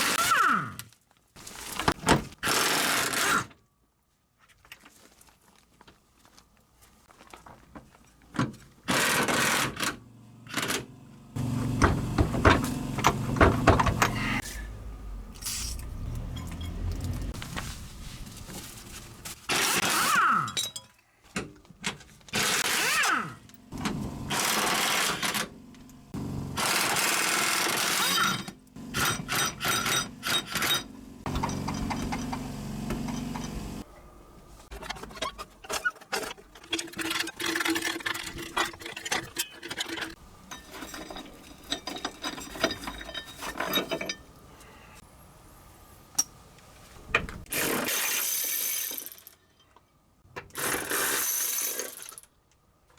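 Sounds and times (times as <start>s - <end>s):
power tool bursts: 24.3s - 25.4s, 26.6s - 29.9s, 50.5s - 52.2s.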